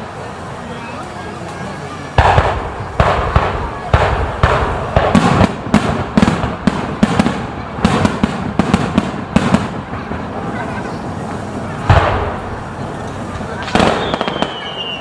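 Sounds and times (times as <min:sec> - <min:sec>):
fireworks crackling: 0:00.0 - 0:15.0
firework shell bursts: 0:11.6 - 0:15.0.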